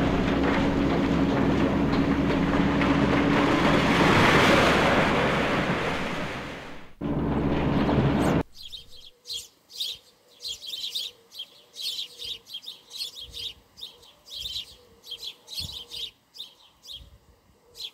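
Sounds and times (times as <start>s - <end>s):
loud rushing noise: 2.2s - 8.4s
small birds chirping: 8.2s - 17.9s.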